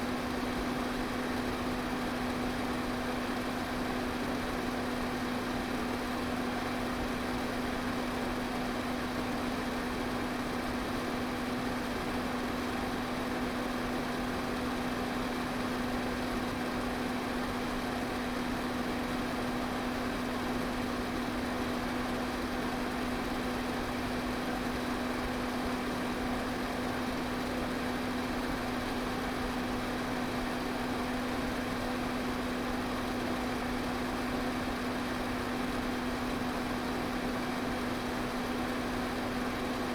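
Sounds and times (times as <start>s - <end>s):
electric fan running: 0.0s - 6.6s.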